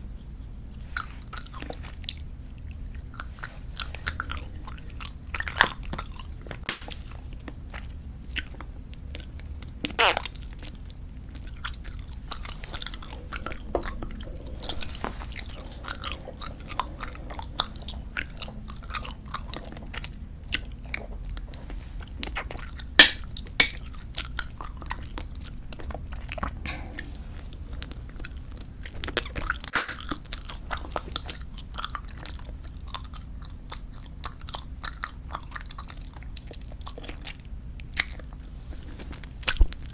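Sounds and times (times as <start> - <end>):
bubblegum chewing: 0.9 - 38.5
gum snaps: 22.4 - 24.6.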